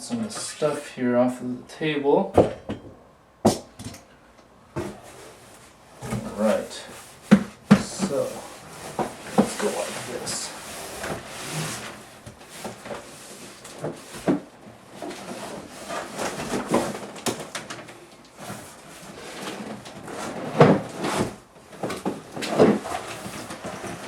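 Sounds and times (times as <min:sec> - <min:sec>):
box knocks and thumps: 0:02.3 - 0:04.0, 0:07.2 - 0:09.7
cardboard scraping and rustling: 0:04.8 - 0:24.0.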